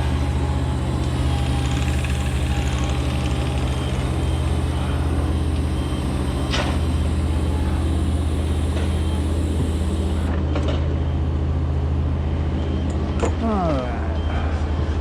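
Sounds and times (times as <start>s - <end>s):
large engine idling: 0.0s - 10.5s.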